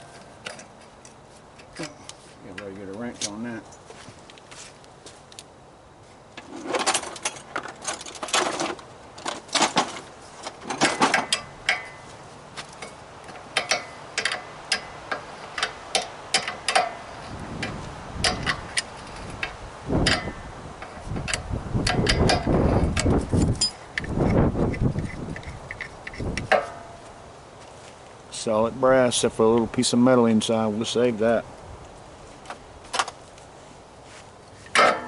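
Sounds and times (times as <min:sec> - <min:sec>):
heavy knocking and handling: 0:06.4 - 0:27.1, 0:34.6 - 0:35.0.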